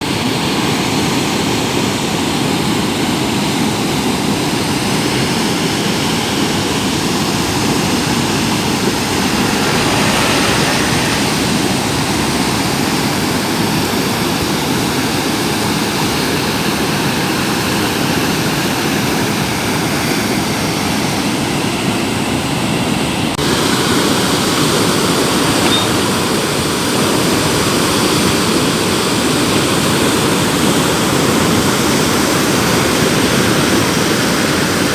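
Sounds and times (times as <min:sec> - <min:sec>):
river in flood rushing: 0:00.1 - 0:34.9.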